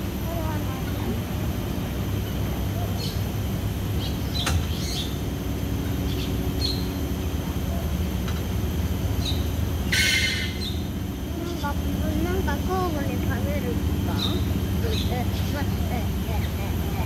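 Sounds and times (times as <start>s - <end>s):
steady low rumble: 0.0s - 17.0s
birds chirping: 0.4s - 17.0s
harsh bird call: 9.2s - 11.0s.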